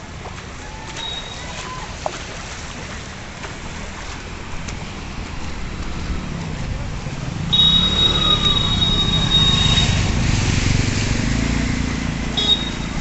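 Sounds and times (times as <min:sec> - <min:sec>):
road vehicles rumbling: 0:00.0 - 0:13.0
high steady squeal: 0:07.5 - 0:10.2.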